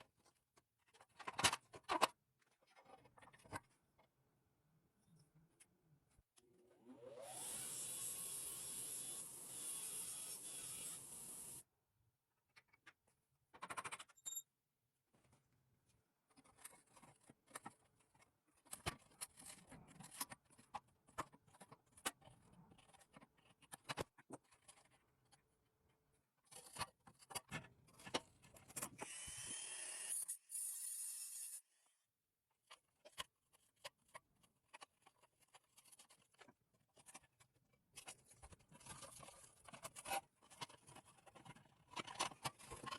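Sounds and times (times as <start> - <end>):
small power tool running: 6.8 - 11.6.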